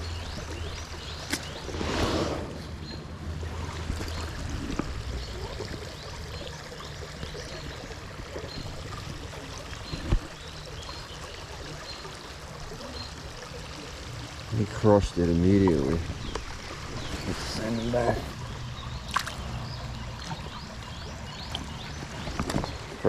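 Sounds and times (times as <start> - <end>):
creek water running over riffle: 0.0 - 23.0
brief rush of noise: 1.6 - 3.2.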